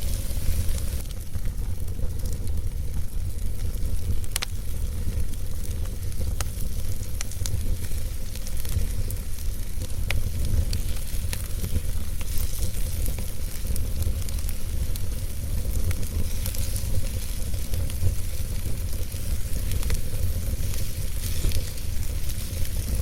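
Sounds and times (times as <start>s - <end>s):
crackles and pops from logs: 0.0s - 23.0s
wood fire burning: 0.0s - 23.0s.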